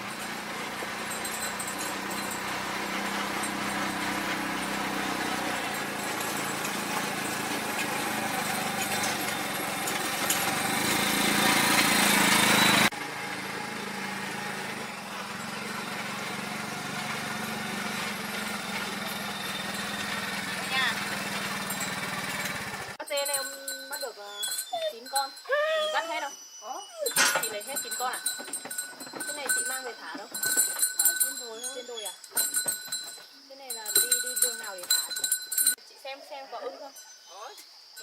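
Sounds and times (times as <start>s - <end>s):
road noise: 0.0s - 23.0s
vehicle engine running: 0.0s - 23.0s.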